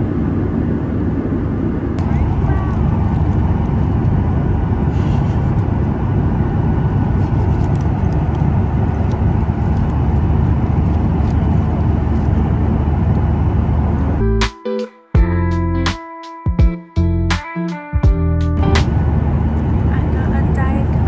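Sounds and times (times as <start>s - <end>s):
jet engine cabin rumble: 0.0s - 14.2s, 18.7s - 21.0s.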